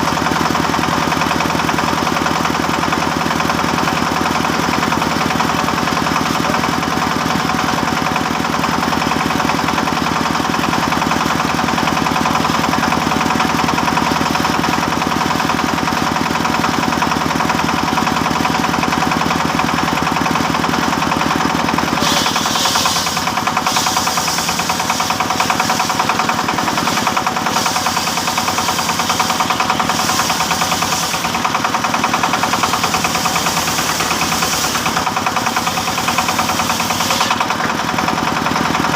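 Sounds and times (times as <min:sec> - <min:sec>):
engine-driven wood saw running: 0:00.0 - 0:38.9
saw blade hissing: 0:22.0 - 0:37.4.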